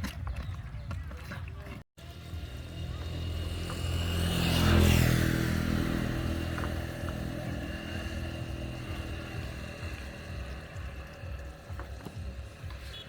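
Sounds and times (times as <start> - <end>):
engine running: 2.0 - 13.0.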